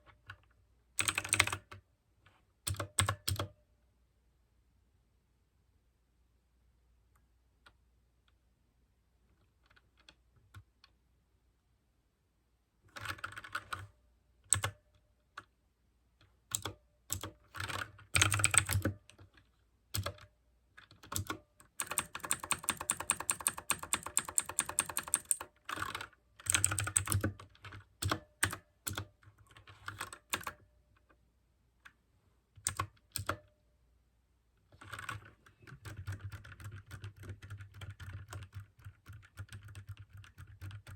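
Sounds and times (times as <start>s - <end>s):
typing on clicky mechanical keyboard: 1.0s - 1.8s, 2.7s - 3.6s, 12.9s - 13.9s, 14.5s - 14.9s, 16.5s - 30.7s, 32.6s - 33.5s, 34.8s - 40.9s.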